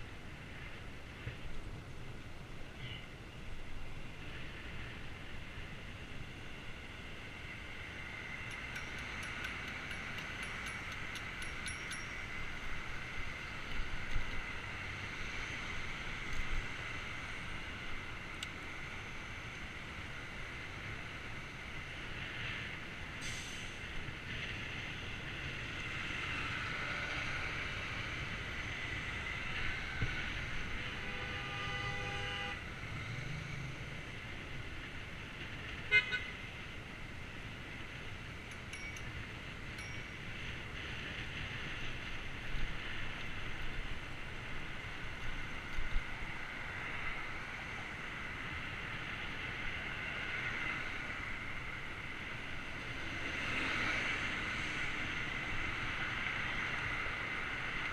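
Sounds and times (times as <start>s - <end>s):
wind and tyre noise: 0.0s - 57.9s
bike clicks and rattles: 8.3s - 12.8s.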